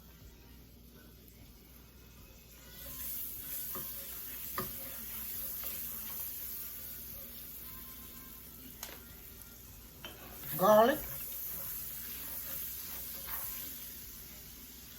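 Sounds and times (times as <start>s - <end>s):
onions sizzling in a frying pan: 0.0s - 14.9s.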